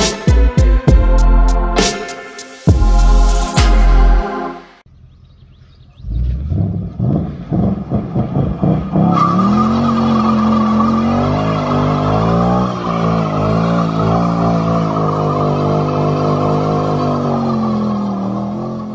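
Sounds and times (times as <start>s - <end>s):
car engine revving high: 6.2s - 18.9s.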